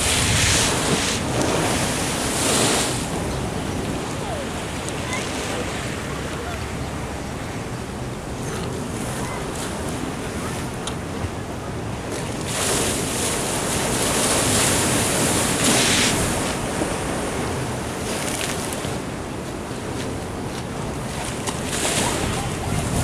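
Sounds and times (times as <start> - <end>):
ocean surf washing in: 0.0 - 10.7
wind buffeting the microphone: 0.0 - 18.4, 19.0 - 23.0.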